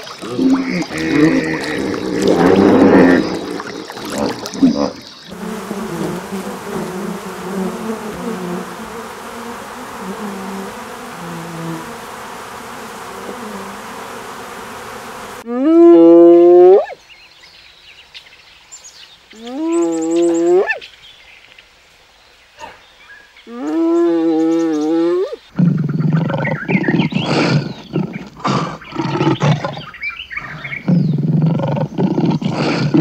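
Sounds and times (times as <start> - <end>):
honeybee swarm buzzing: 0.0 - 15.5.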